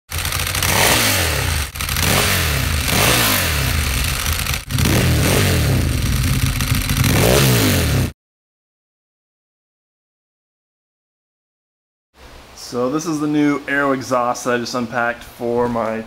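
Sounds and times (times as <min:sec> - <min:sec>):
motorcycle engine revving: 0:00.1 - 0:08.2.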